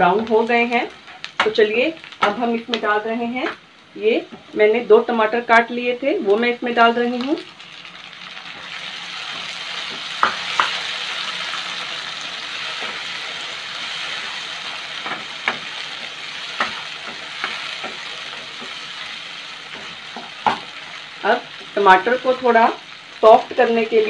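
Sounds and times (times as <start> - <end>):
vegetables sizzling in hot oil: 0.0 - 24.0.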